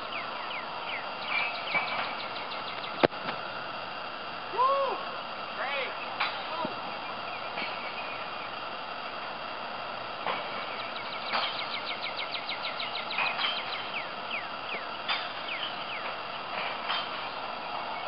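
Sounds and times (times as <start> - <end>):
bird chirping: 0.0 - 3.1, 6.9 - 8.6, 10.6 - 16.6
outdoor background hiss: 0.0 - 18.0.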